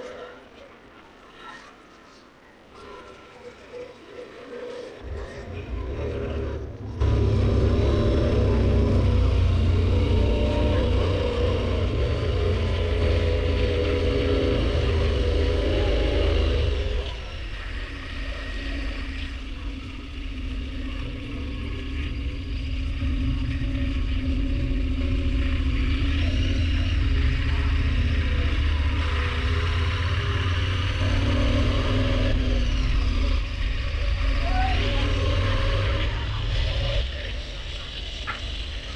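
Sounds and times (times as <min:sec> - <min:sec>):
motorcycle engine running: 0:07.0 - 0:17.0, 0:20.1 - 0:36.7.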